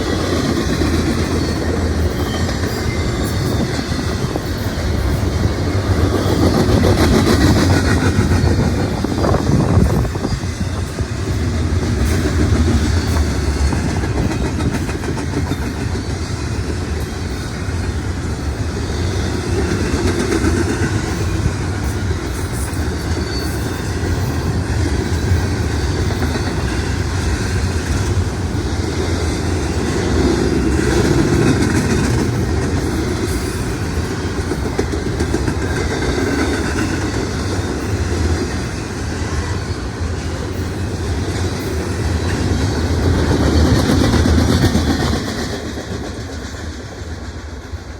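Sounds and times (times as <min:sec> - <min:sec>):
train wheels on rail: 0:00.0 - 0:47.9.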